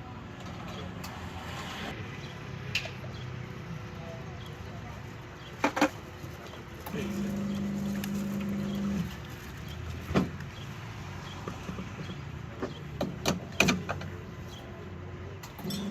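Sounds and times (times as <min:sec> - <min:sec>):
street background: 0:00.0 - 0:15.9
sharp clicks and knocks: 0:11.4 - 0:14.2.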